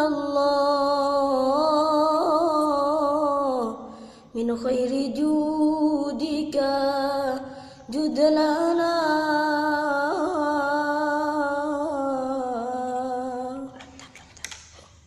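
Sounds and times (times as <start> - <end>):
person singing unaccompanied: 4.4 - 14.1.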